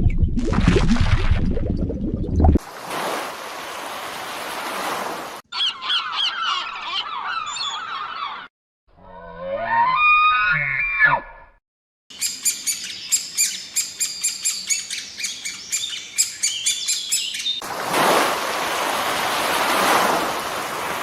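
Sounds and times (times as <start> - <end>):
animal call with gliding tones: 9.0 - 11.5
bird chirping rapidly: 12.1 - 17.6.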